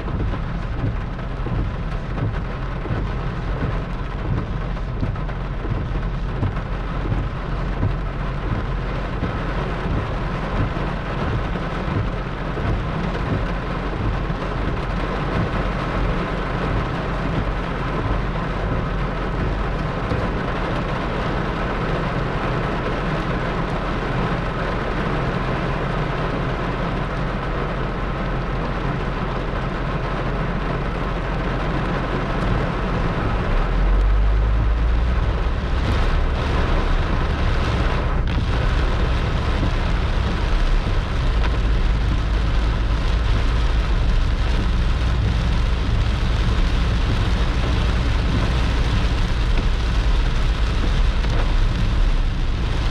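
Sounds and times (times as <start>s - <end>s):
torrential rain pouring: 0.0s - 52.9s
deep thunder rumble: 32.1s - 52.9s.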